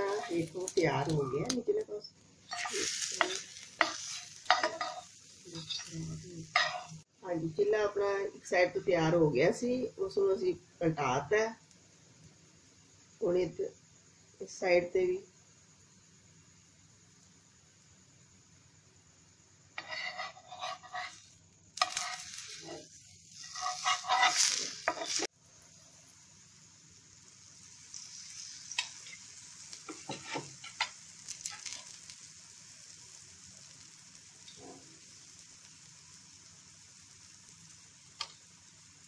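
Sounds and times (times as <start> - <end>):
scraping in pan: 0.0 - 1.6, 2.5 - 7.0, 19.8 - 25.3, 29.9 - 31.9
sizzle with crackles and pops: 0.0 - 39.0.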